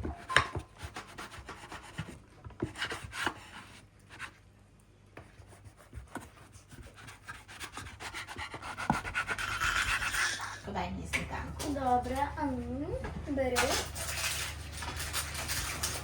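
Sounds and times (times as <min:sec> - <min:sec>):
utensils and dishes scraping: 0:09.1 - 0:10.7, 0:13.6 - 0:16.0.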